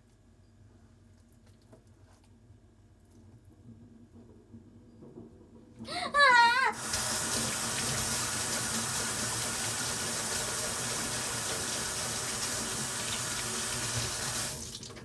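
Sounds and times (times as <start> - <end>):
kitchen tap running: 6.2 - 15.0.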